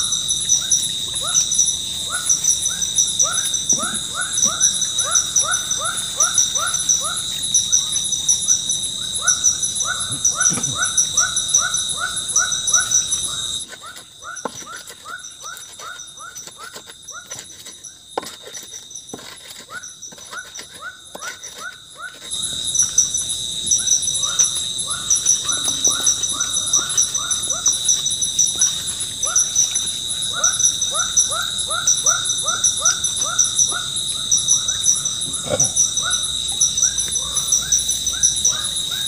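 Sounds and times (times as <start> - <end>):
repeated chirping animal call: 0.0 - 13.6, 21.6 - 39.0
insects trilling: 0.0 - 39.0.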